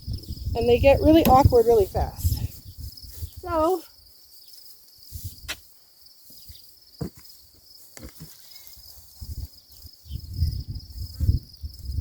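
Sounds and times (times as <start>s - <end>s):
crickets trilling: 0.0s - 12.0s
hay bale thumping and rumbling: 0.5s - 2.9s.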